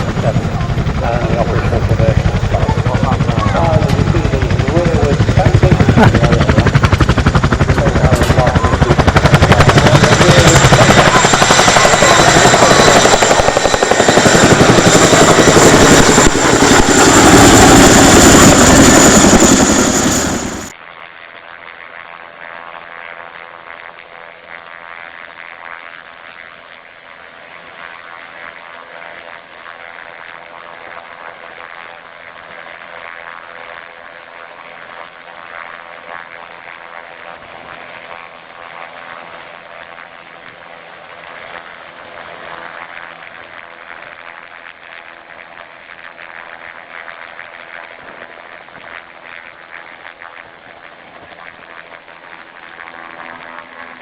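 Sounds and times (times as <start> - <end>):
aircraft engines droning: 0.0 - 20.7, 50.5 - 54.0.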